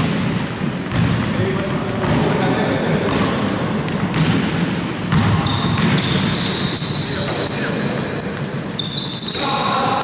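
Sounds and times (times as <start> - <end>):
basketball bouncing: 0.0 - 2.4, 3.0 - 7.6
busy hall background: 0.0 - 10.0
players' voices: 1.2 - 3.8, 5.2 - 8.4
sneakers squeaking on floor: 3.9 - 10.0.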